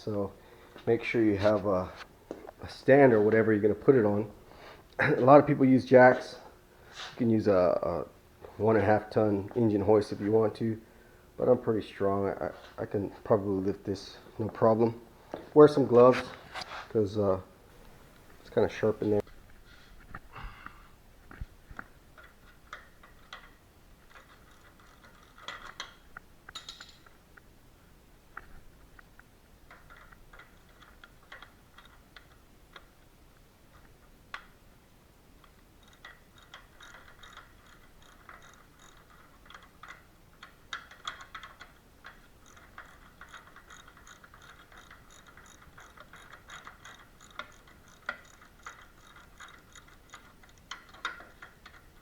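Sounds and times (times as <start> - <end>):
socket ratchet clicking: 35.4 - 52.0.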